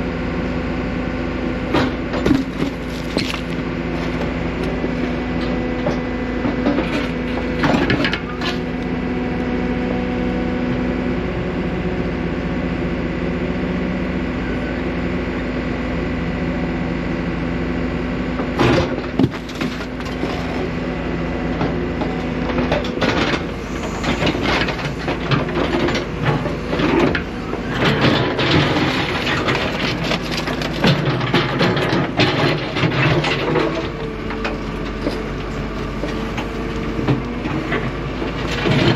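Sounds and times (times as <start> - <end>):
excavator diesel engine running: 0.0 - 38.9
bucket scraping rock and gravel: 2.2 - 5.5, 19.2 - 20.9, 23.0 - 33.9.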